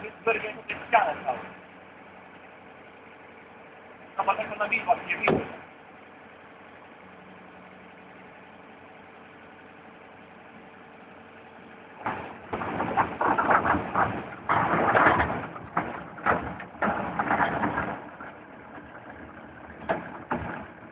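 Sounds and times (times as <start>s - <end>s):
forklift idling hum: 0.0s - 20.9s
machinery clattering and knocking: 12.0s - 20.9s.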